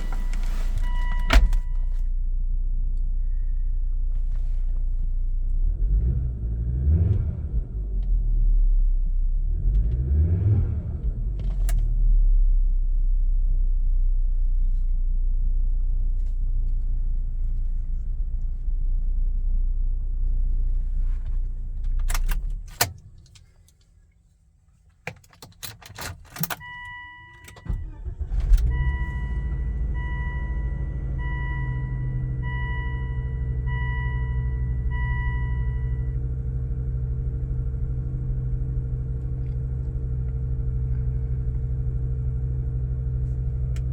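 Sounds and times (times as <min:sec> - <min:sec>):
car engine idling and revving: 0:00.0 - 0:24.2, 0:24.8 - 0:43.9
car chime beeping: 0:00.8 - 0:01.9, 0:26.4 - 0:36.2
engine starting: 0:27.5 - 0:28.9.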